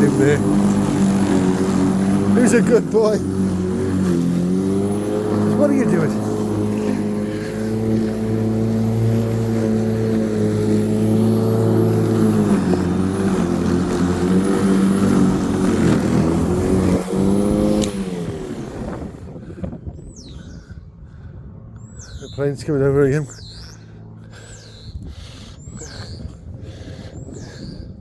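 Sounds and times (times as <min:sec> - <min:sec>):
electric lawnmower motor: 0:00.0 - 0:19.6.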